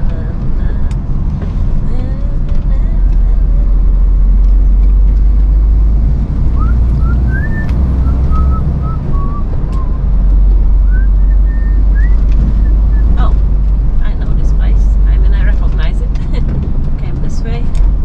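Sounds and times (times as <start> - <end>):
lorry engine drone: 0.0 - 18.0
person whistling a tune: 6.6 - 10.0, 10.8 - 13.2.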